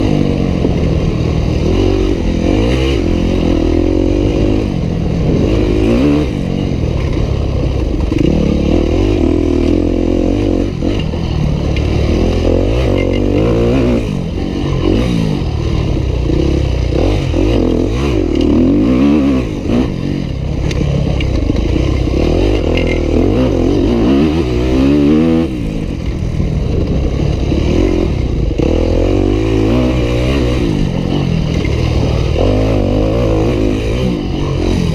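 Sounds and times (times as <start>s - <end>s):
dirt bike engine revving: 0.0s - 34.9s.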